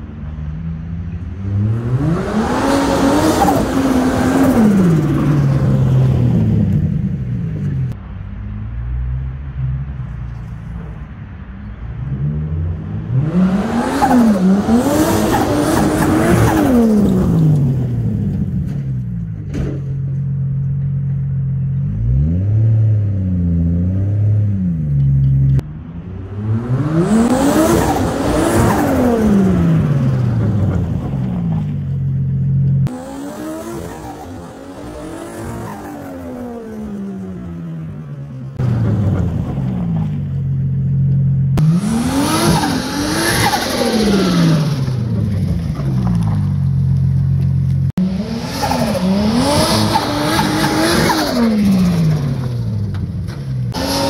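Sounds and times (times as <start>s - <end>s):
car engine revving hard: 1.5s - 6.0s, 13.1s - 17.7s, 26.3s - 30.6s, 32.9s - 37.0s, 41.6s - 45.1s, 48.0s - 52.6s, 53.7s - 54.0s.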